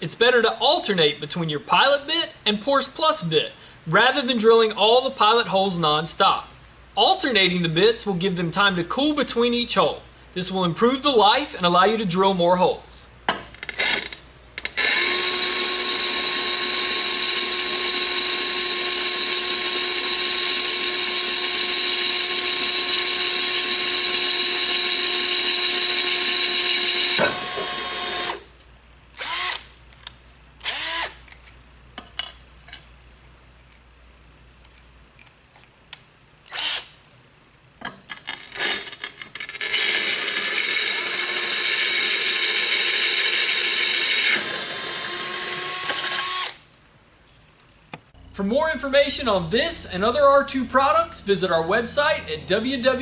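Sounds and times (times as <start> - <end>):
electric drill boring tile: 13.8 - 28.4, 38.6 - 46.6.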